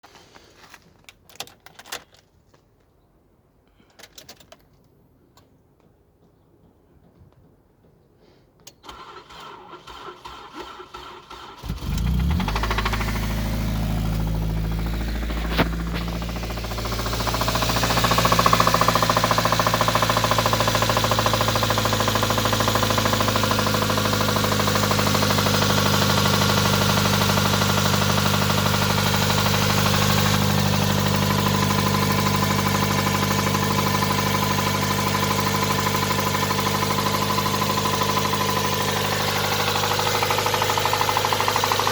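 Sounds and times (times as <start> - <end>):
car starter cranking: 8.8 - 41.9
engine running with knock: 11.8 - 41.9.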